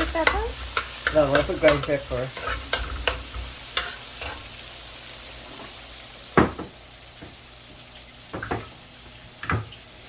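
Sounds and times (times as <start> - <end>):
food sizzling in butter in a pan: 0.0 - 10.0.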